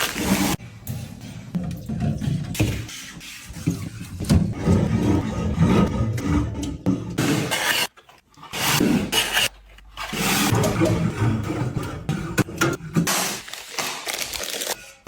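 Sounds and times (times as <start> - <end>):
packaging being handled: 13.4 - 14.8.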